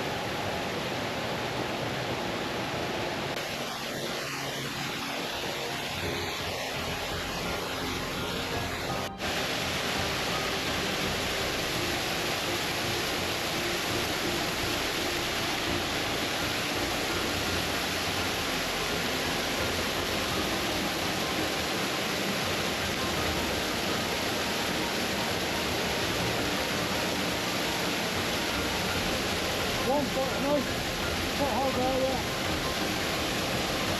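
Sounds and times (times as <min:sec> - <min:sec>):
waterfall rushing over rocks: 0:00.0 - 0:33.9.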